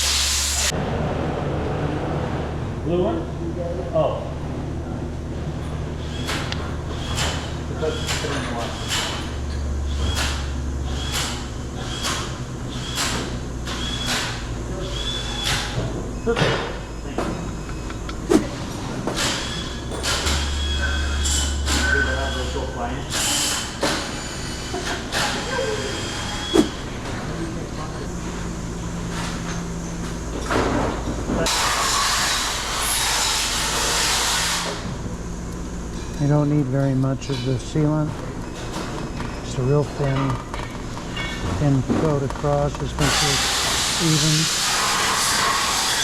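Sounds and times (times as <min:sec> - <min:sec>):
loud steady hiss: 0:00.0 - 0:00.7, 0:43.0 - 0:46.0
steady low hum: 0:00.0 - 0:31.6, 0:34.6 - 0:44.4
scraping strokes with squeak: 0:19.2 - 0:24.6, 0:25.8 - 0:26.8.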